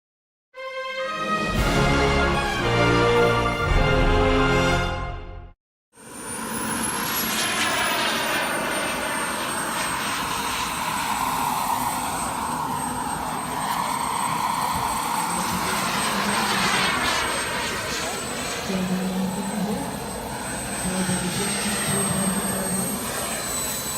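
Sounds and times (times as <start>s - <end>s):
model jet turbine whine: 6.0s - 23.9s.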